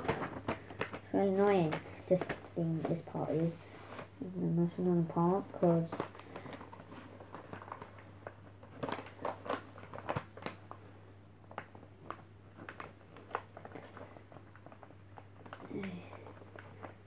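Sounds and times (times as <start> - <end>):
paper being folded and creased: 0.0 - 10.8.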